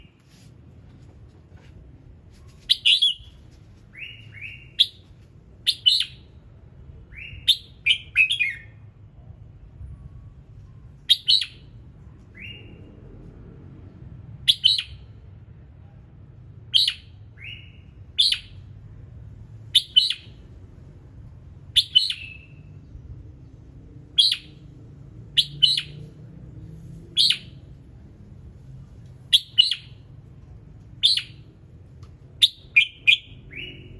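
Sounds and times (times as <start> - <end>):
bird singing whistled phrases: 2.7 - 3.3, 5.7 - 6.3, 7.1 - 8.8, 11.1 - 11.7, 14.5 - 15.0, 16.7 - 18.5, 19.8 - 20.3, 21.8 - 22.7, 24.2 - 24.5, 25.4 - 26.0, 27.2 - 27.6, 29.3 - 30.0, 31.0 - 31.4, 32.4 - 33.9.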